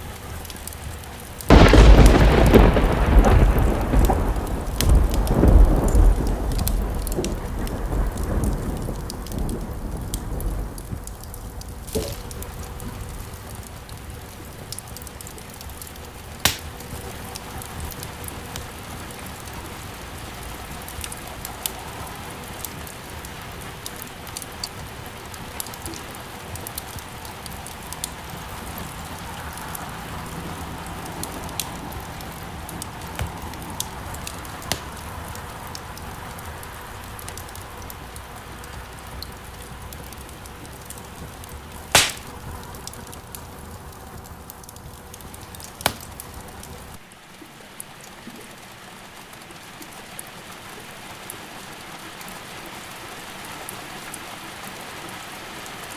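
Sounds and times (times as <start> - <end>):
wood fire crackling and popping: 0.0 - 19.8, 30.8 - 47.1
rain hiss: 0.0 - 55.9.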